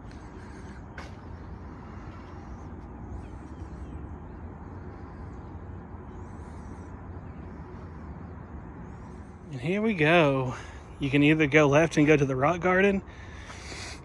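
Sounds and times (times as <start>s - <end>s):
faint bird calls: 0.0s - 9.7s.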